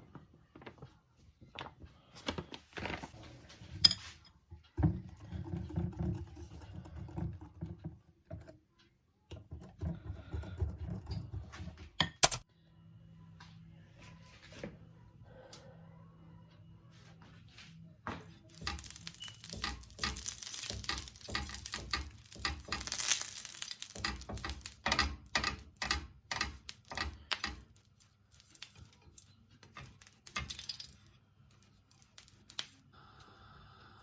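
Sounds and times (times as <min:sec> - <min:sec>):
kitchen rustling and scraping: 0:00.0 - 0:08.8, 0:09.4 - 0:12.5, 0:16.9 - 0:32.8.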